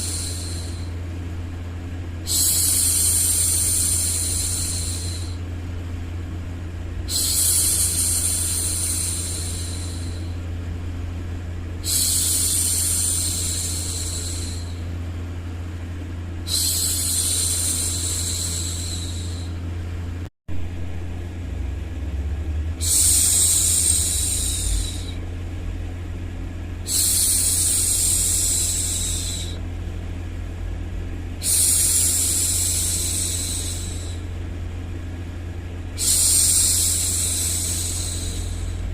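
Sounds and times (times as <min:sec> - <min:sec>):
woman hushing with shhh sounds: 0:00.0 - 0:01.0, 0:07.0 - 0:10.4, 0:11.8 - 0:14.9, 0:16.5 - 0:19.6, 0:22.8 - 0:25.2, 0:36.0 - 0:38.9
low background hum: 0:00.0 - 0:38.9.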